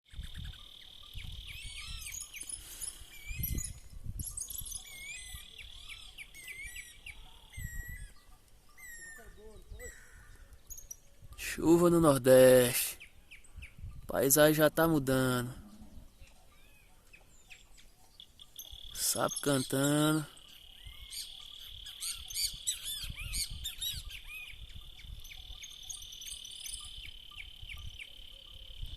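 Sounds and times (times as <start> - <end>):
birds chirping and whistling: 0.1 - 11.8, 12.8 - 28.9.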